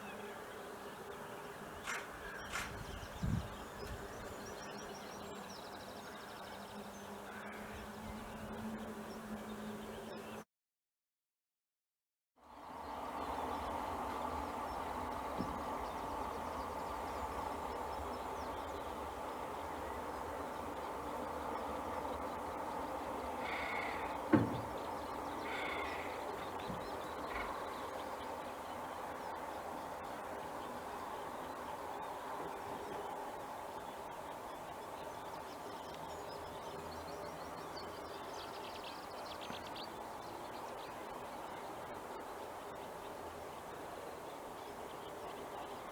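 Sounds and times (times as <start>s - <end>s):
outdoor rumble and hiss: 0.0s - 10.4s, 12.4s - 45.9s
songbirds singing: 0.0s - 10.4s, 12.6s - 45.9s
distant bird chirps: 1.8s - 7.7s, 13.2s - 29.6s.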